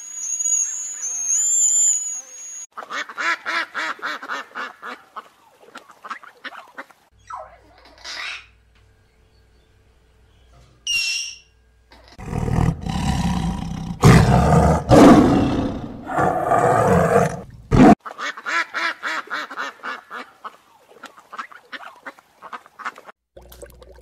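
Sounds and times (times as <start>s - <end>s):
macaw squawk: 6.1s - 8.6s
tiger roaring: 12.2s - 18.0s.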